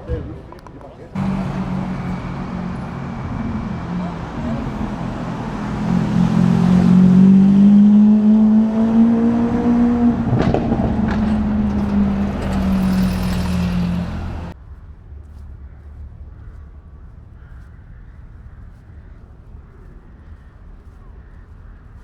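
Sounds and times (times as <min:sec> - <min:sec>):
supercar engine running loud: 0:01.2 - 0:14.6.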